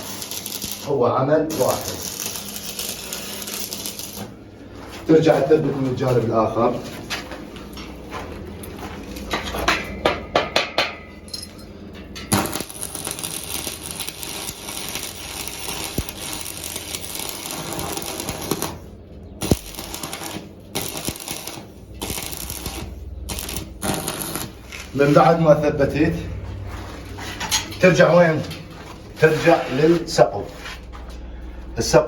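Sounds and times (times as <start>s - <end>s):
arc welding crackling hiss: 0.0s - 4.3s, 12.3s - 25.3s.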